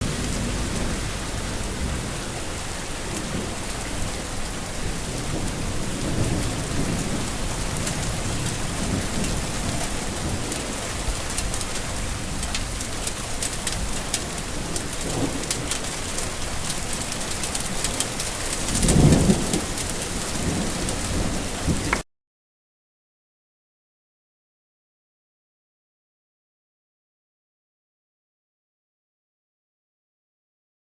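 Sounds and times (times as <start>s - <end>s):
heavy rain falling: 0.0s - 22.0s
thunder rolling: 0.0s - 22.0s.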